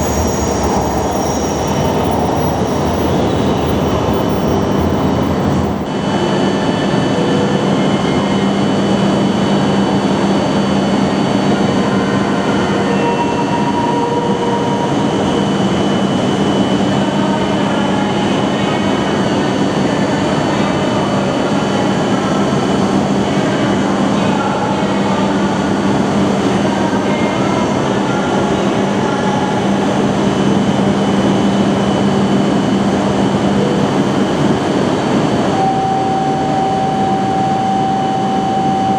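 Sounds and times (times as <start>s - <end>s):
low hum: 0.0s - 5.9s
train rumble: 0.0s - 5.9s.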